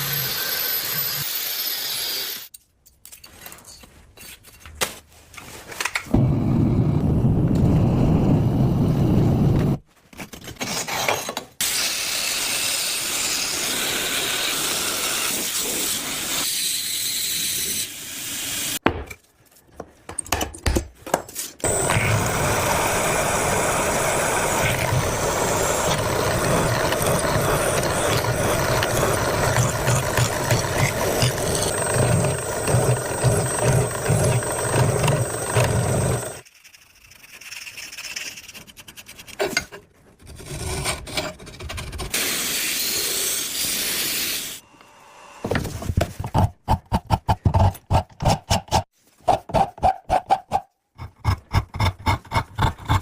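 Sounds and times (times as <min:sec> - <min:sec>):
steel being ground: 0:21.6 - 0:38.7.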